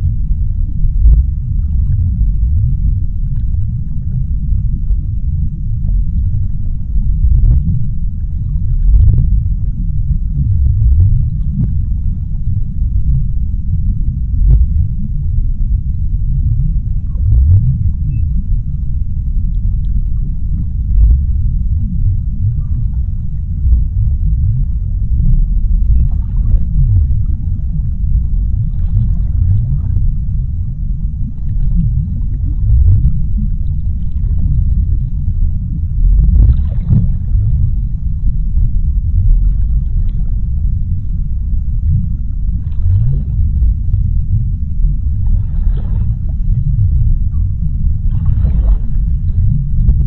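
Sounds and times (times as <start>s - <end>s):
low gliding gurgles: 0.0s - 50.0s
underwater deep rumble: 0.0s - 50.0s.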